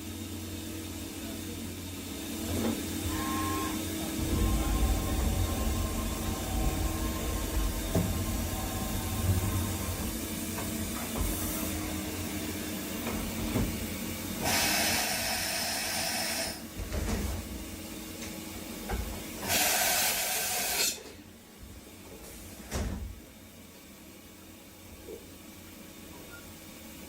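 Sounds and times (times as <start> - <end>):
machine humming: 2.2 - 15.5
machine knocks: 3.1 - 11.9
loud hissing bursts: 14.4 - 16.6, 19.4 - 20.9.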